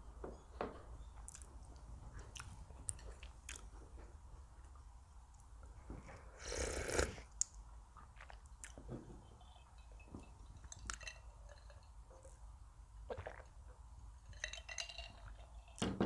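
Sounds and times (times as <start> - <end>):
person chewing food: 1.3 - 1.5, 2.1 - 3.8, 6.3 - 8.9, 13.1 - 13.6.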